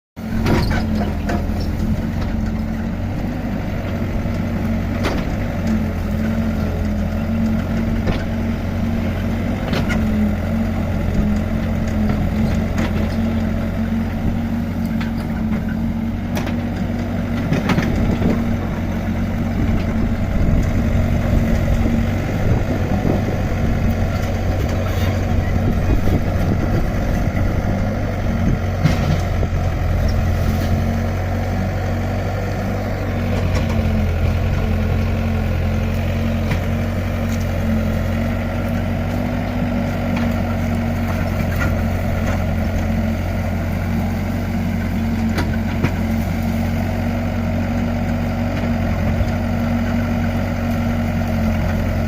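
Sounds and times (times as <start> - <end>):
excavator diesel engine running: 0.2 - 52.0.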